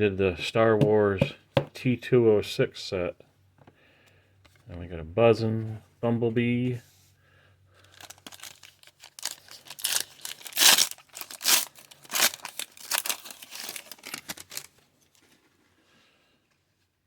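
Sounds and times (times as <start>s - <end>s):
plastic packaging crinkling: 7.8s - 15.4s.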